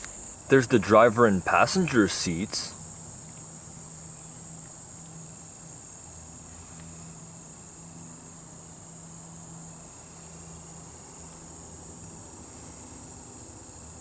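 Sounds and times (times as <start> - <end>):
faint low hum: 0.0 - 5.4
insects trilling: 0.0 - 14.0.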